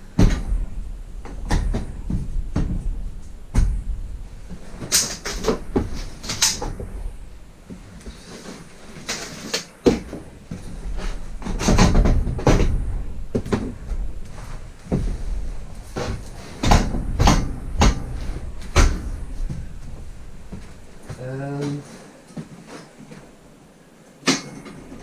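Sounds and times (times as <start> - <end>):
table knocking and rattling: 11.4 - 14.0.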